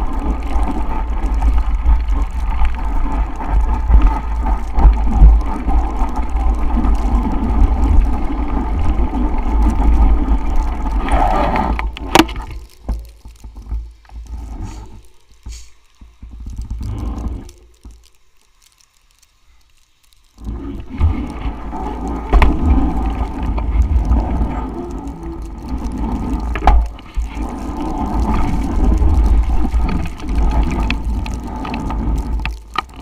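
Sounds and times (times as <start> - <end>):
wind rumble on microphone: 0.0 - 12.6, 20.4 - 33.0
bicycle rolling through snow: 0.0 - 33.0.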